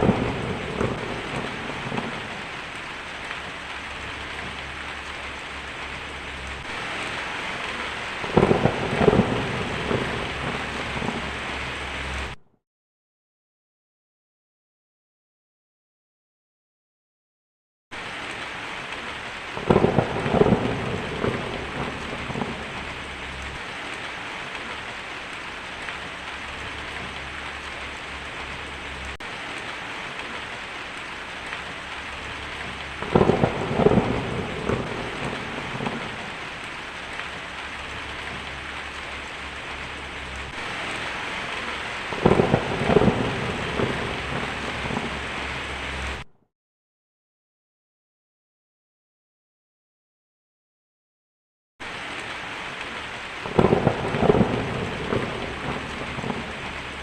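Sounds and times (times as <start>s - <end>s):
heavy rain on a tin roof: 0.0s - 12.4s, 18.0s - 46.3s, 51.8s - 57.0s
thunder rumbling: 0.0s - 12.4s, 18.8s - 46.3s, 53.4s - 57.0s.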